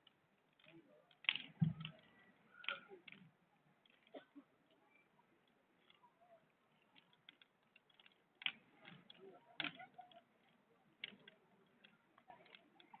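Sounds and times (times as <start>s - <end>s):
bonfire crackling faintly: 0.0s - 13.0s.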